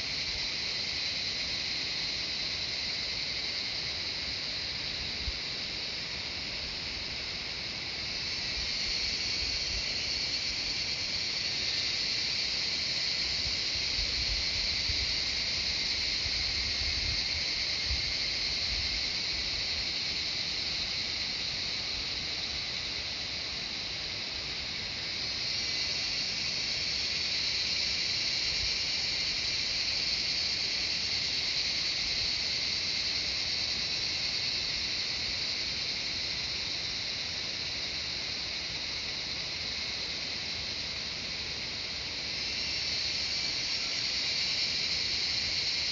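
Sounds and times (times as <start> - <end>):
cicadas buzzing: 0.0 - 45.9.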